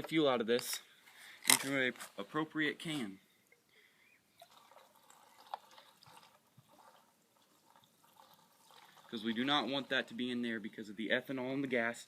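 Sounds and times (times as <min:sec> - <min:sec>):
gasoline dripping into a can: 0:04.4 - 0:10.1.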